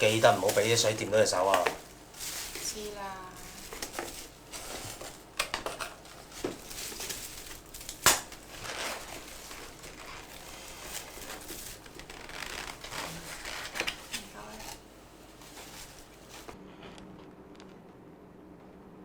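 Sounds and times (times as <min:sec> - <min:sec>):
light rustling: 0:00.0 - 0:16.6.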